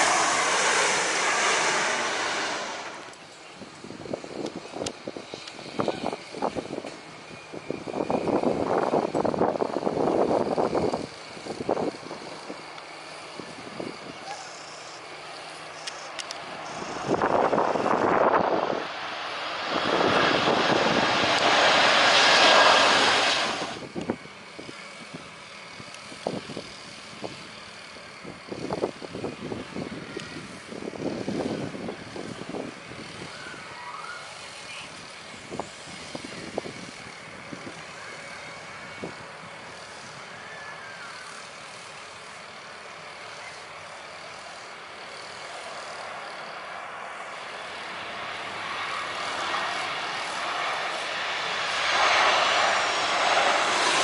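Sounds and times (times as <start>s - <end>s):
distant jet noise: 0.0s - 54.0s
jet airliner engine roar: 0.0s - 54.0s.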